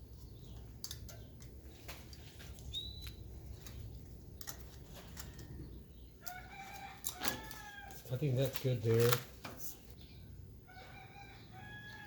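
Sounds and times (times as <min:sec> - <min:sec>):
rising bird chirp: 0:02.5 - 0:03.5, 0:09.9 - 0:12.0.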